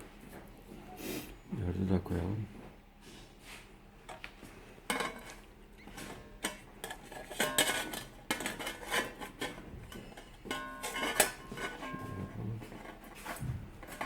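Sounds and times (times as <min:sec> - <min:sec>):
sheet steel pieces clinking: 0:06.4 - 0:12.2.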